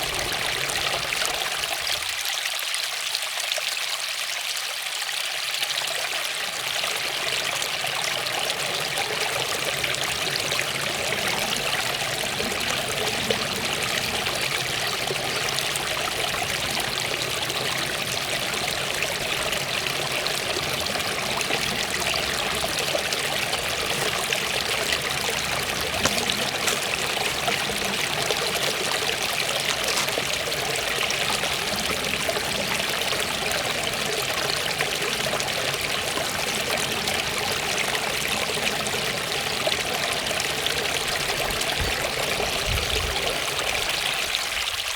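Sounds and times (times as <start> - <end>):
waterfall rushing: 7.2 - 42.6.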